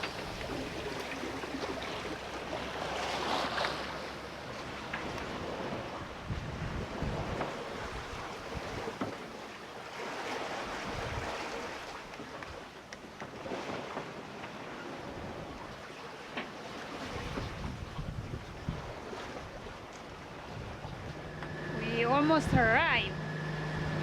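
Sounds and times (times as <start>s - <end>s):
water rushing along hull: 0.0s - 24.0s
wind buffeting microphone: 4.6s - 9.1s, 10.7s - 11.4s, 17.1s - 24.0s.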